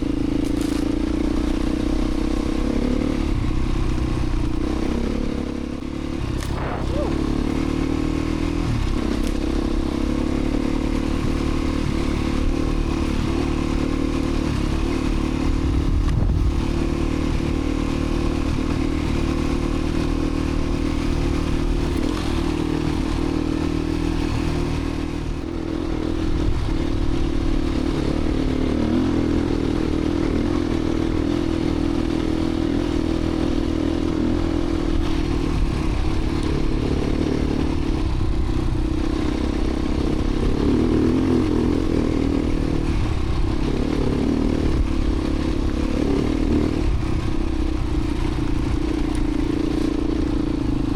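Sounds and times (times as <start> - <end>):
dirt bike engine running: 0.0 - 50.9.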